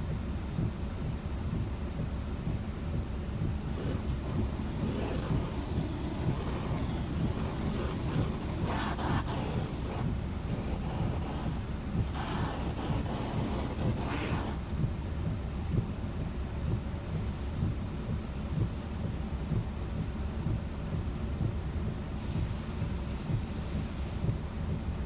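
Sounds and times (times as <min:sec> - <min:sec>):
water spray hissing on windshield: 0:03.7 - 0:14.6.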